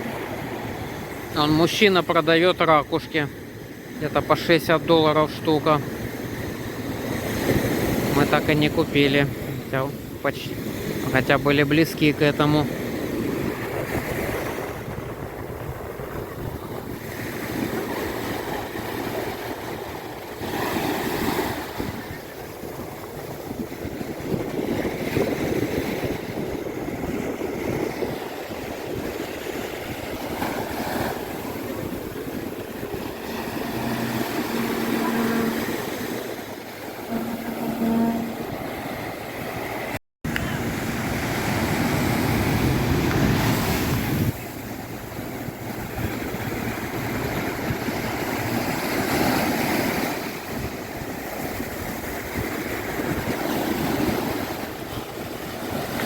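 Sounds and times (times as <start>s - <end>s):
ocean surf breaking: 0.0s - 56.0s
wind rumbling on microphone: 12.6s - 56.0s.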